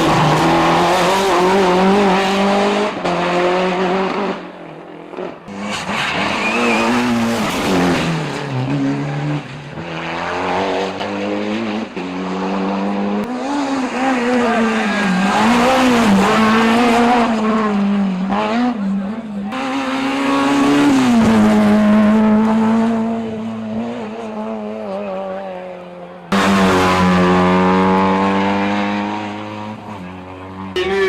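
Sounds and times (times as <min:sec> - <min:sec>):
rally car engines revving: 0:00.0 - 0:31.0.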